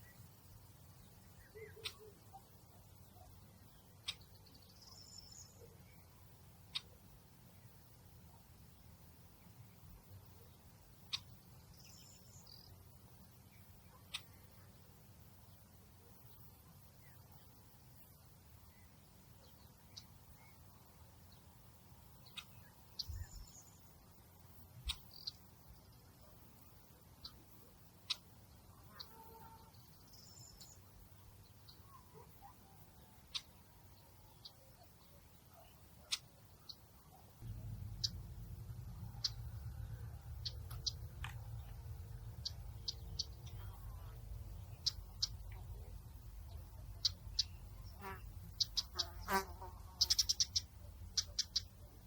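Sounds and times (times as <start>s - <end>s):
bird chirps: 1.0s - 6.1s, 22.2s - 24.0s, 24.8s - 26.0s, 28.1s - 52.0s
faint low rumble: 37.0s - 49.0s.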